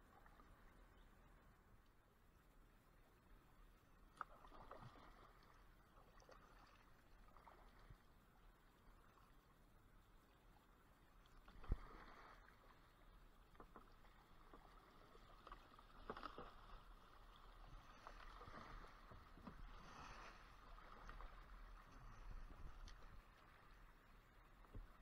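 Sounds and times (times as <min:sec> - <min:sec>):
kayak paddle swishing through water: 0:03.9 - 0:09.5, 0:10.9 - 0:25.0.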